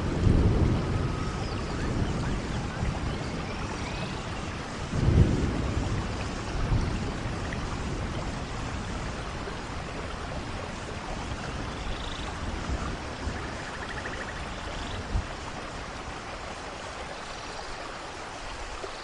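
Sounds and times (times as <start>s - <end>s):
thunder rumbles: 0.0s - 16.2s
steady rain: 0.0s - 19.0s.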